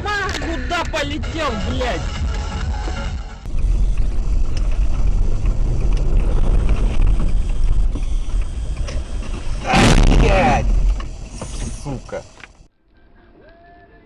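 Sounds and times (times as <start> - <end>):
car road and wind noise: 2.2 - 12.5.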